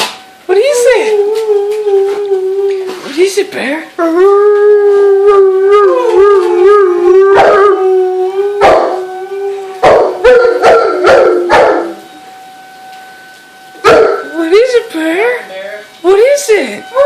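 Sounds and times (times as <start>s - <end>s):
dog howling: 0.7s - 3.3s, 4.0s - 13.0s, 13.7s - 14.3s
dog yipping: 7.4s - 7.6s, 13.8s - 14.3s.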